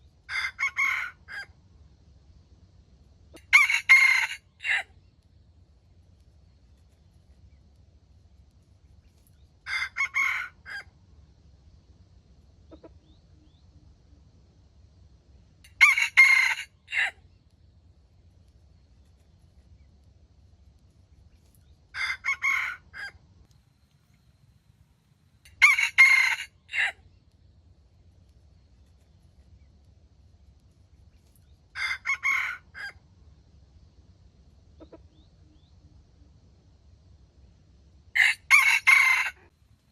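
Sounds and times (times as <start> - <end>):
rooster crowing: 0.3 - 1.5, 3.4 - 4.9, 9.7 - 10.9, 15.7 - 17.2, 21.9 - 23.2, 25.5 - 27.0, 31.8 - 33.0, 38.2 - 39.5.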